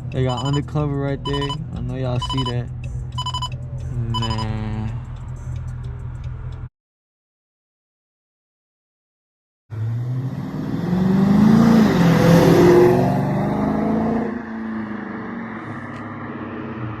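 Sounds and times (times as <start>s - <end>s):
car engine accelerating hard: 9.7s - 17.0s.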